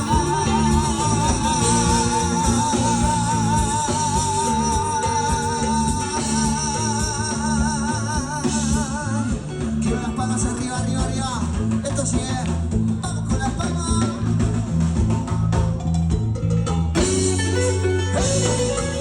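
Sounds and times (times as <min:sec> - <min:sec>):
latin dance music over speakers: 0:00.0 - 0:19.0.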